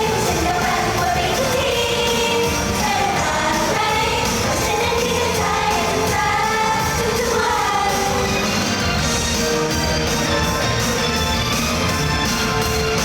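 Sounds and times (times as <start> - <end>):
woman singing: 0.0 - 8.3
loud pop music: 0.0 - 13.0.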